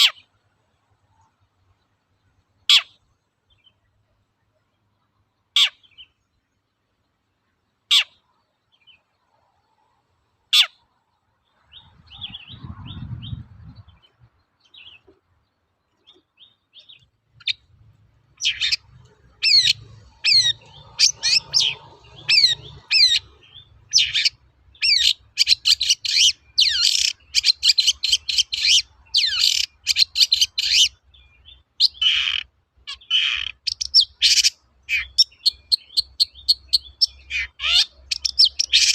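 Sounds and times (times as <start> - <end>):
bird singing: 0.0 - 38.9
low rumble: 11.8 - 14.2.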